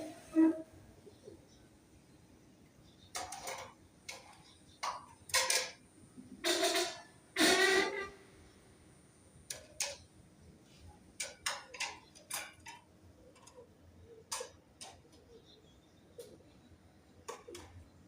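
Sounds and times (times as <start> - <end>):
birds chirping and clicking: 2.6 - 5.8, 9.5 - 10.1, 11.2 - 18.0.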